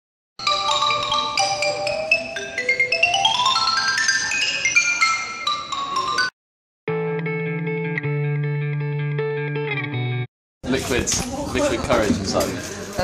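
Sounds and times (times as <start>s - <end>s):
mallet percussion music: 0.4s - 6.4s.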